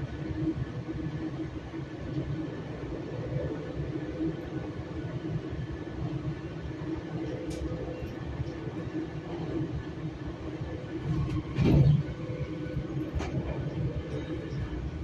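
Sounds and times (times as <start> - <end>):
train wheels rumbling on track: 0.0 - 15.0
train bump: 11.1 - 12.1.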